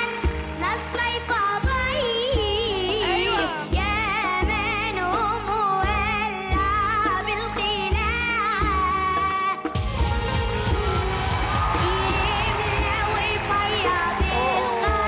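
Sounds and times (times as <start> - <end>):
girl singing: 0.0 - 9.8, 11.6 - 15.0
band with deep bass beat: 7.9 - 15.0.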